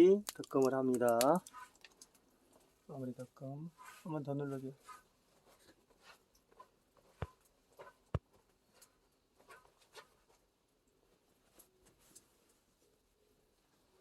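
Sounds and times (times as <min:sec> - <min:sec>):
tea leaves crackling in a pan: 0:00.0 - 0:05.1.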